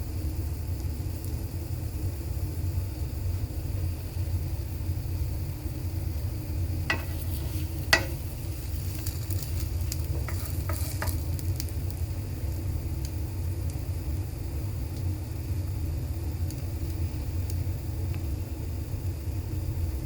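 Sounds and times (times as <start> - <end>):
bread sizzling in a pan: 0.0 - 20.0
utensil clinking against pan: 6.9 - 11.3.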